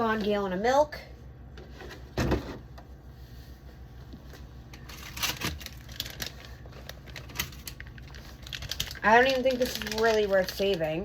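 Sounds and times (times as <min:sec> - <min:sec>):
low steady hum: 0:00.0 - 0:11.0
food packaging clicks and crinkles: 0:04.8 - 0:11.0.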